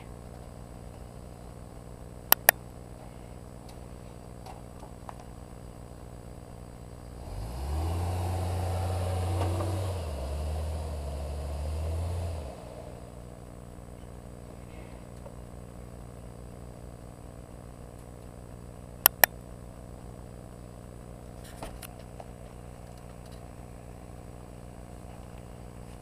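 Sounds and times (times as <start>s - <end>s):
sharp clicks: 2.3s - 2.6s, 19.0s - 19.4s
car engine idling and revving: 6.9s - 13.8s.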